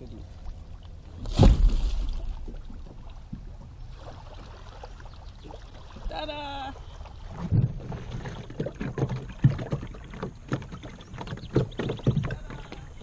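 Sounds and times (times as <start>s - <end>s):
kayak knocks and thumps: 7.3s - 13.0s.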